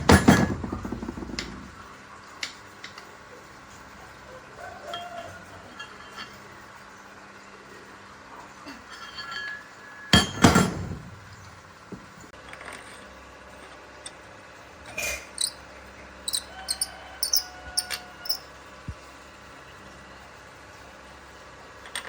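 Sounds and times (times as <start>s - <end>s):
metal tools clanking: 5.8s - 6.5s, 8.7s - 11.5s, 14.8s - 15.6s, 16.3s - 18.4s.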